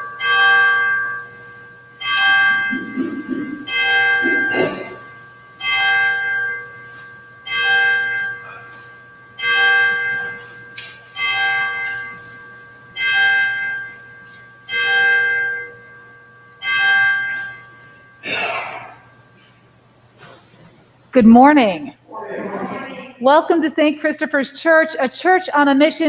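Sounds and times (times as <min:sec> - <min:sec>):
church bell tolling: 0:00.0 - 0:19.1.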